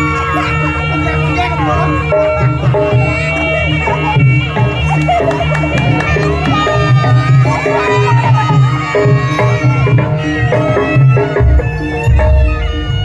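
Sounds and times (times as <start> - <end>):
reedy wind melody: 0.0 - 13.0
hand drums beating: 2.2 - 11.6.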